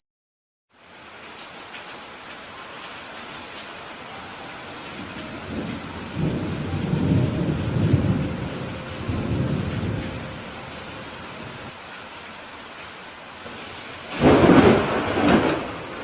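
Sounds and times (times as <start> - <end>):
steady rain falling: 0.7 - 16.0
thunder rumbling: 4.7 - 11.7, 13.4 - 16.0.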